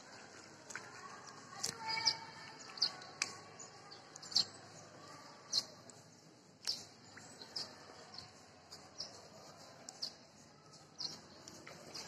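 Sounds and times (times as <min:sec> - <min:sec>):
birds chirping: 0:06.6 - 0:12.0.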